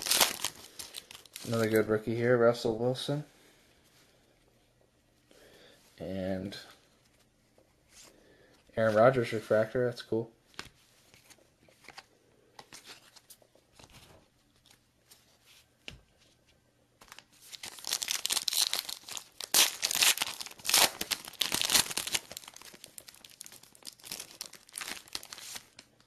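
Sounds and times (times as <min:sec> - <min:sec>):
foil wrapper tearing and crinkling: 0:00.0 - 0:01.8, 0:17.1 - 0:25.9.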